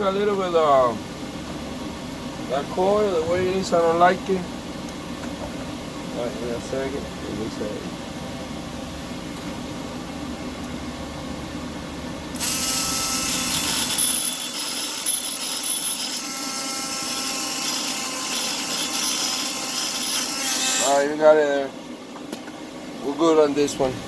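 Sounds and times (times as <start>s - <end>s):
steady hum: 0.0s - 24.0s
harsh scraping of rust: 12.4s - 20.9s.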